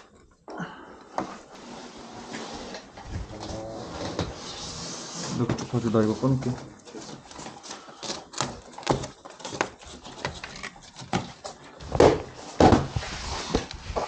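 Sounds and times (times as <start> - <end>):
tools and boards clicking and knocking: 6.9 - 12.9.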